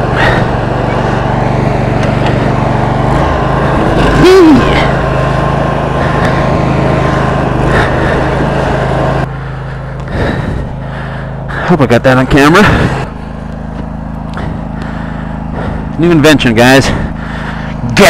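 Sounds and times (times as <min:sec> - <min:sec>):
lawn tractor engine running: 0:00.0 - 0:18.0
person shouting: 0:04.0 - 0:05.0.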